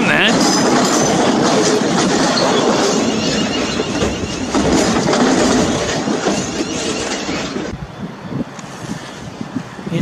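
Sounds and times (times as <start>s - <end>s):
train passing: 0.0s - 10.0s
clicking from rail joints: 0.4s - 7.7s.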